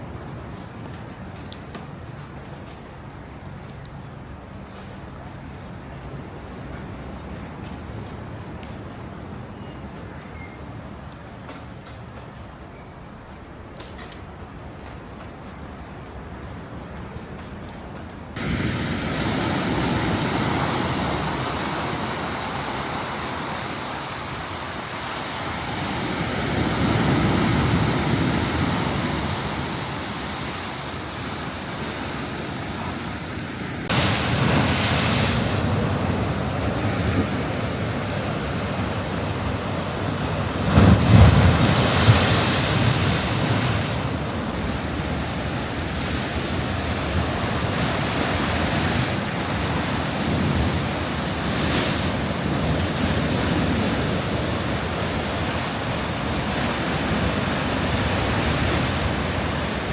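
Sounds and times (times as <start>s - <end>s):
wind buffeting microphone: 11.0s - 59.9s
sea waves breaking on shore: 18.3s - 59.9s.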